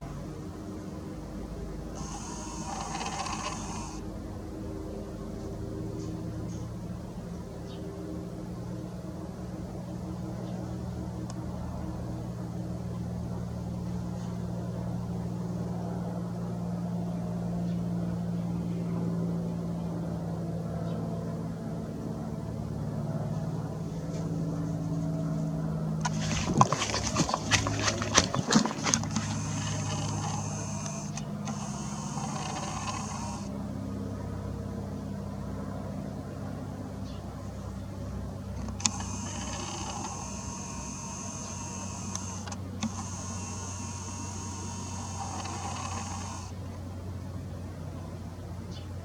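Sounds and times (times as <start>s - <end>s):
propeller aircraft engine drone: 0.0s - 49.0s
sharp clicks: 2.0s - 4.0s, 26.0s - 33.5s, 38.6s - 46.5s.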